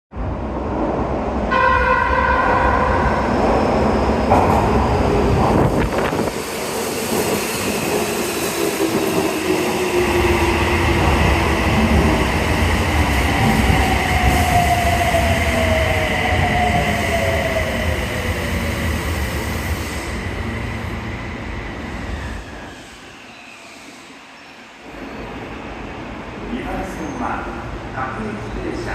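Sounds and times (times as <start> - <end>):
train horn: 1.5 - 3.3.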